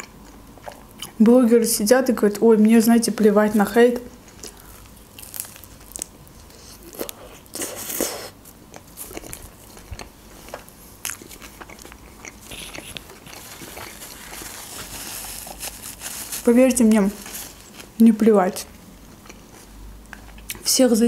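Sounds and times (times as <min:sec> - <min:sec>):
biting and chewing crunchy food: 0:04.2 - 0:18.1, 0:19.0 - 0:20.6.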